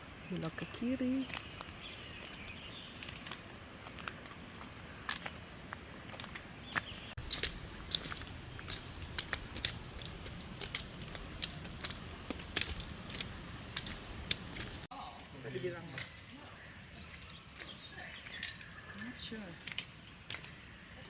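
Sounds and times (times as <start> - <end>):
footsteps on gravel: 0.4 - 14.9.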